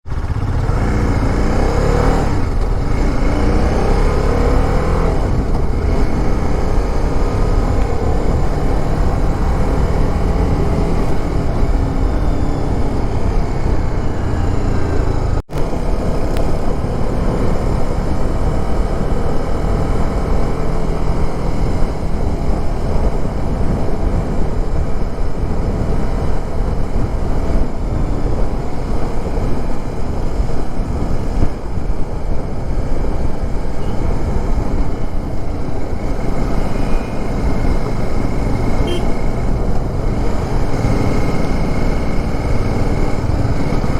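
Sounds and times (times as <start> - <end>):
motorcycle engine running: 0.0 - 43.9
wind rushing over microphone: 0.1 - 43.9.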